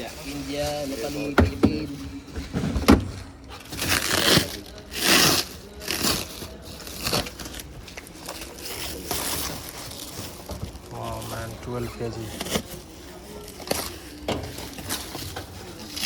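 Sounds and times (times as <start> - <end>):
packaging rustling and tearing: 3.2 - 16.0.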